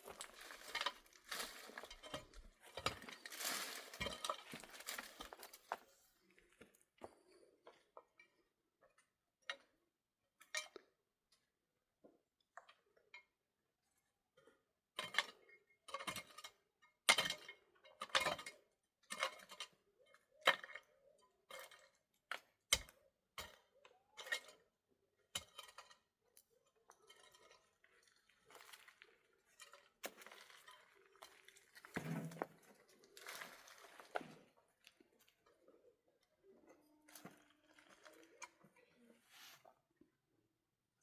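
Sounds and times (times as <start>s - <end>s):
rustling and handling noise: 0.0s - 7.3s, 26.4s - 39.9s.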